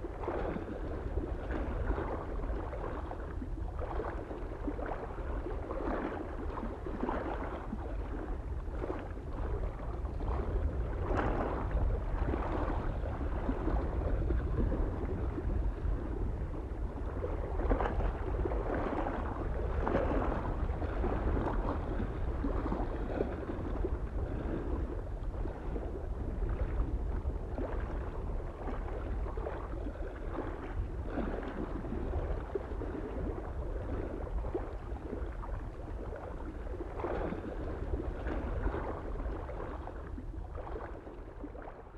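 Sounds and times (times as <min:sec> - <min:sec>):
small waves lapping on shore: 0:00.0 - 0:41.9
wind rumble on microphone: 0:00.0 - 0:41.9.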